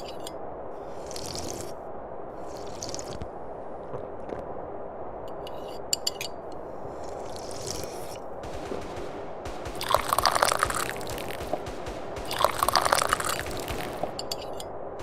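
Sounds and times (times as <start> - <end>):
low background hum: 0.0 - 15.0
person slurping tea: 1.0 - 1.8, 2.4 - 3.2, 7.1 - 8.2
sharp clicks: 8.4 - 14.7.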